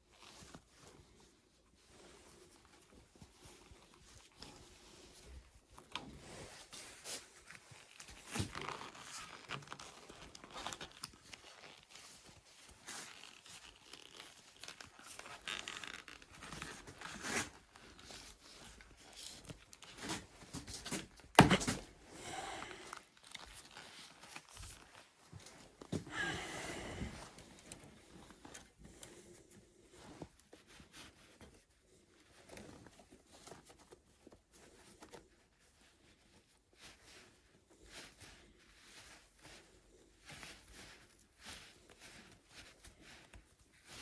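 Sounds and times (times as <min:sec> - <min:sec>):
scraping and tearing noises: 0:03.3 - 0:26.2.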